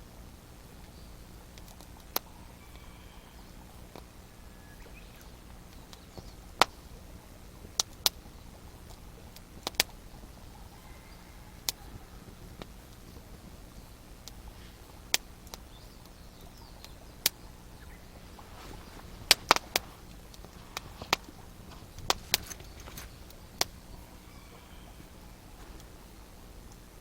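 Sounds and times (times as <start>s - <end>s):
wood fire crackling: 0.0s - 27.0s
sharp pops of fire: 5.5s - 7.0s, 7.6s - 10.1s, 14.2s - 17.5s, 18.3s - 24.1s.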